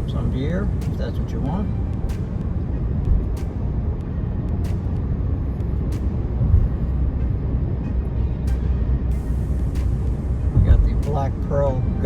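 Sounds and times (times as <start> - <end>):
car road rumble and engine hum: 0.0 - 12.0.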